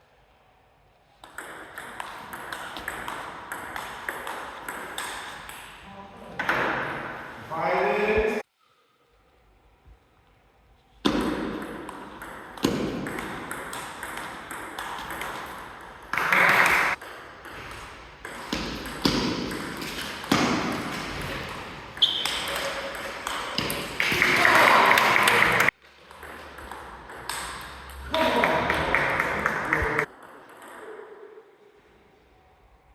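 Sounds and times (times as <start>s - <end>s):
table tennis ball pinging: 1.2s - 5.8s, 11.0s - 31.3s
people shouting: 24.1s - 25.7s.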